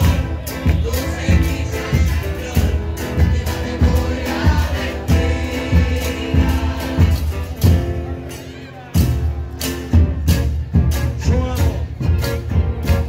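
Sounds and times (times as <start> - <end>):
chorus singing together: 0.0 - 8.1
drum beat: 0.0 - 8.2, 9.0 - 13.0.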